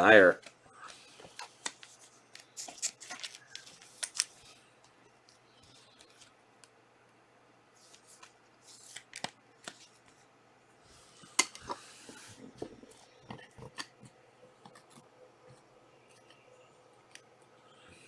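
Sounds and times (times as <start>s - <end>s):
cards sliding and tapping: 0.4s - 4.6s, 7.8s - 10.2s, 11.2s - 16.4s
foil wrappers crinkling and tearing: 2.4s - 4.4s.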